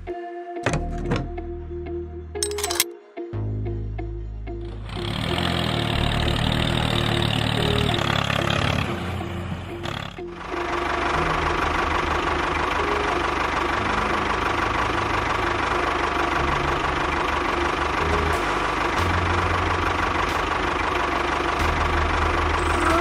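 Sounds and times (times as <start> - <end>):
tractor engine throbbing: 4.6 - 23.0.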